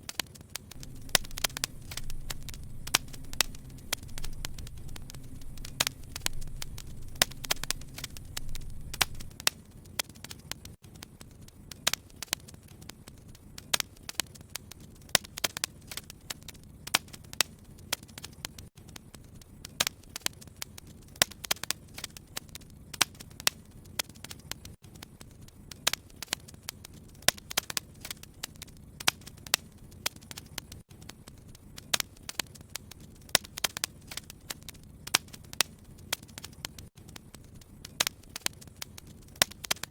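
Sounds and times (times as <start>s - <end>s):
wood fire crackling: 0.0s - 39.9s
low rumble: 0.8s - 9.4s.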